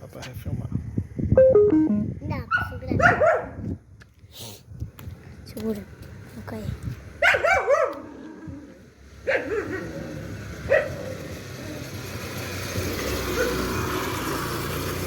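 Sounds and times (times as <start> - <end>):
dog barking: 2.5 - 3.6, 7.2 - 8.1, 9.2 - 9.9, 10.7 - 11.2, 13.3 - 13.7.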